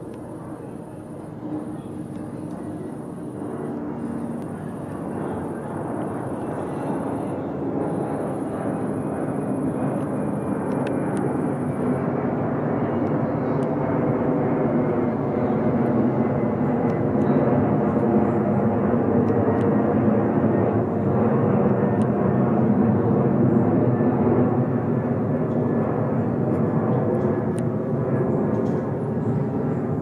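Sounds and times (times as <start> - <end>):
jet engines at takeoff power: 0.0 - 30.0.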